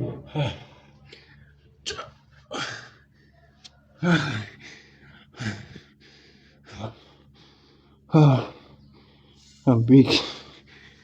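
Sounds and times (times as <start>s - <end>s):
man breathing hard and groaning: 0.1s - 3.2s, 4.0s - 9.4s.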